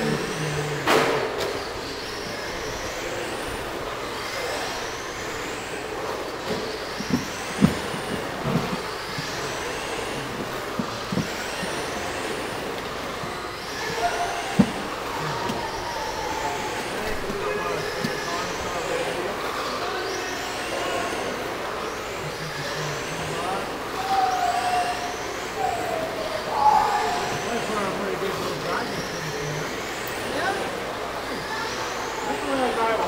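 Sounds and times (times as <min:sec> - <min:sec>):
rc truck motors whining: 0:00.0 - 0:33.0
trucks knocking: 0:06.4 - 0:19.1.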